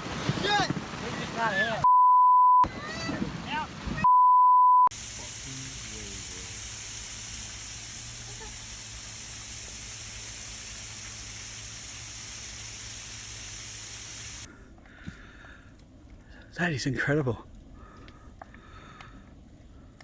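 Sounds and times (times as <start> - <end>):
heavy rain hissing: 4.9 - 14.5.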